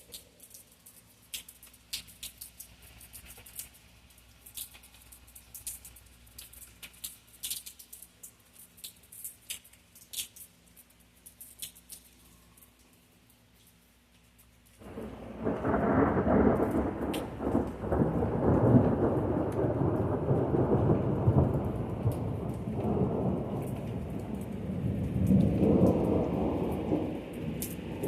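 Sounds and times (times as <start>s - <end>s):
rolling thunder: 14.8s - 28.0s.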